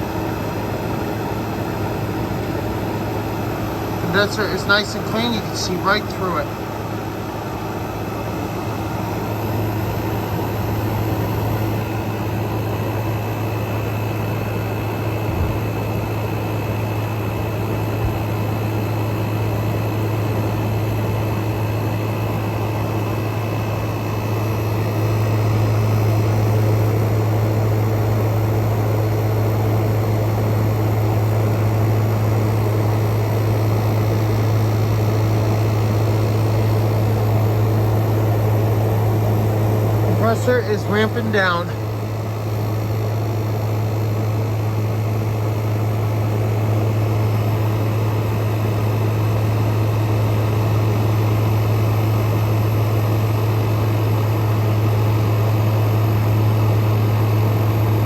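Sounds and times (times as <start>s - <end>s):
fan air rushing: 2.2s - 13.7s, 31.1s - 45.0s
air conditioner humming: 3.6s - 7.1s, 34.5s - 43.7s.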